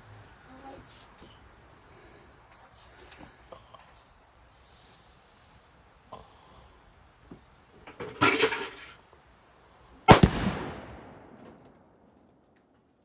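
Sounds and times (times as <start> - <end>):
loud explosion boom: 10.1 - 11.6.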